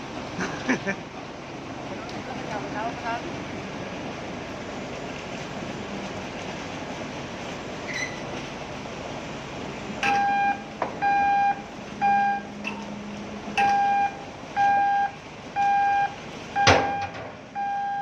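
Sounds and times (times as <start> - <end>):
warning beeper beeping: 10.0 - 12.5, 13.6 - 18.0.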